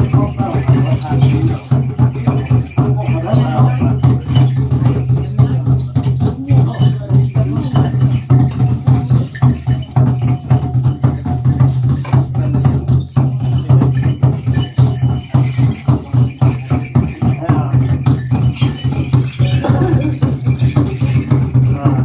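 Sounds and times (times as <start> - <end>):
fast rattling percussion: 0.0 - 22.0.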